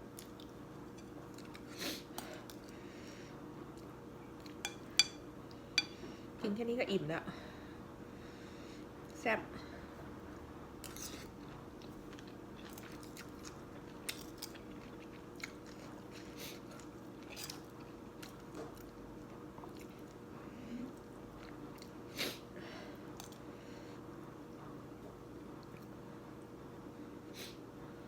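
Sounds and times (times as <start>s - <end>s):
faint steady hum: 0.0s - 28.0s
person chewing noodles: 1.2s - 2.8s, 10.8s - 22.1s.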